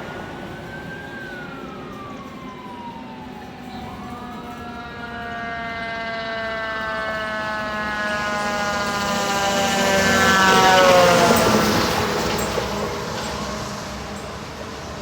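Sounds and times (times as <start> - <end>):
engine and road noise: 0.0 - 15.0
fire truck siren: 0.0 - 15.0.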